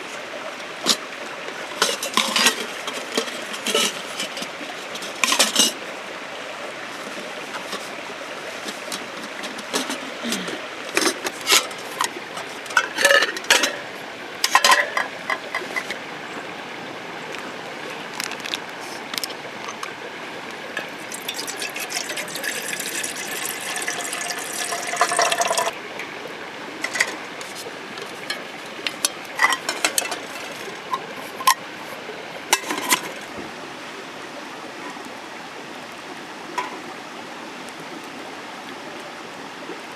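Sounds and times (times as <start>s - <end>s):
cookware and utensils clinking: 1.8s - 5.8s, 12.7s - 13.8s, 14.4s - 16.0s, 20.8s - 25.8s, 26.8s - 27.2s, 28.0s - 31.6s, 32.5s - 33.2s
rain hissing: 20.5s - 25.8s
liquid pouring into pot: 21.1s - 25.8s.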